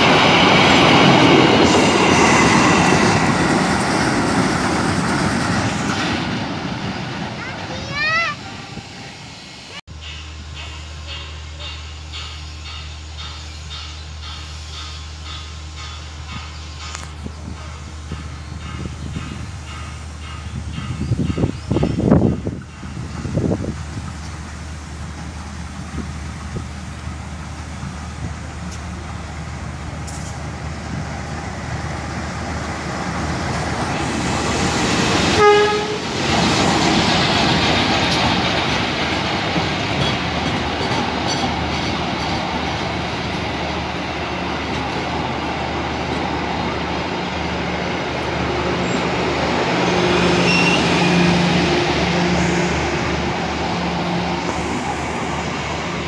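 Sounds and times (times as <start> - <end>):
train wheels clattering over rails: 0.0 - 8.3, 9.9 - 56.0
diesel train engine passing: 0.0 - 56.0
train horn blast: 35.3 - 36.2.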